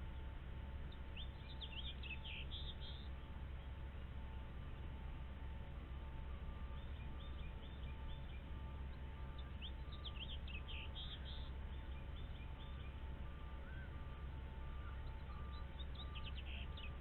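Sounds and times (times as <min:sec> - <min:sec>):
birds chirping: 0:00.8 - 0:03.8, 0:06.7 - 0:17.0.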